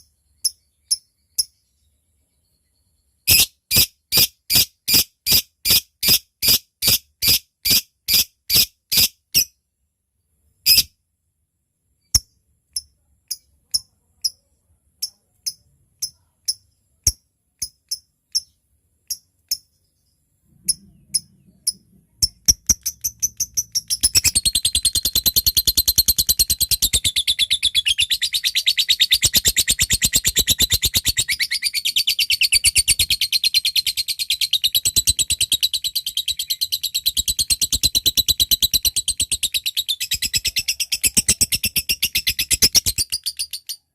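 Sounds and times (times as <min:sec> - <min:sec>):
lovebird chips and chatter: 0:20.7 - 0:43.8.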